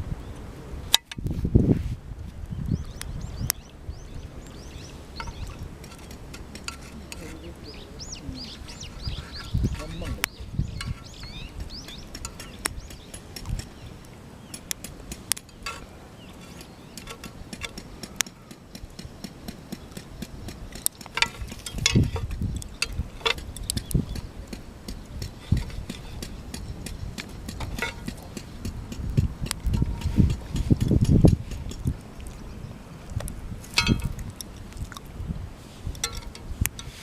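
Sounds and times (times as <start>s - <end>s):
camp cooking gear clinking: 24.9s - 28.6s, 33.7s - 34.6s, 35.9s - 37.0s.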